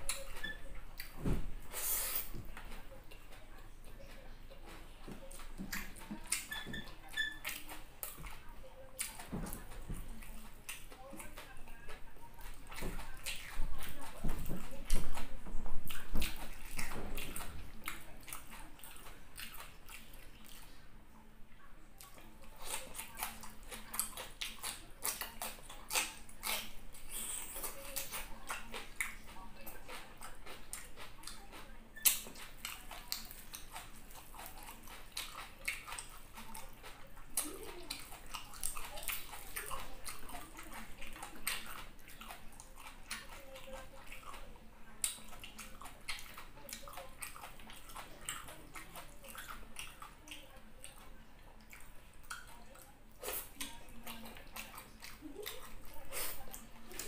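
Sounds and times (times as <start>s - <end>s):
lip smacks: 0.0s - 20.8s, 22.0s - 57.0s
person chewing: 0.0s - 20.8s, 22.0s - 57.0s
wet mouth clicks: 22.0s - 40.2s, 45.0s - 57.0s.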